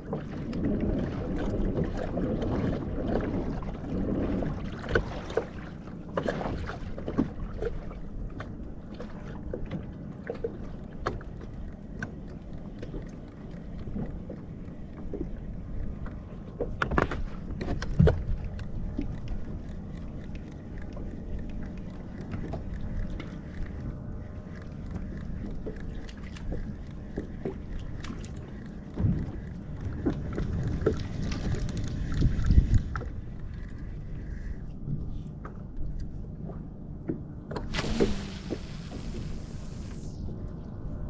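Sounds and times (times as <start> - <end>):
water sloshing against kayak hull: 0.0 - 18.6, 37.7 - 40.1.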